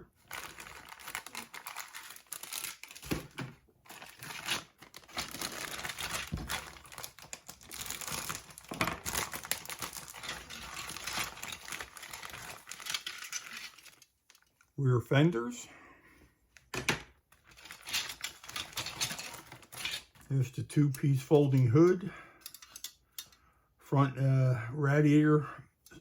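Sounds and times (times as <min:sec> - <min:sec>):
plastic bags crinkling: 0:00.0 - 0:14.6, 0:17.4 - 0:20.2.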